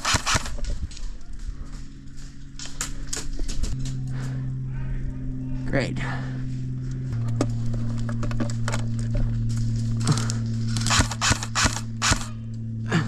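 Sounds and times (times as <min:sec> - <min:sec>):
airsoft gun shots: 0:00.0 - 0:00.6, 0:10.8 - 0:12.4.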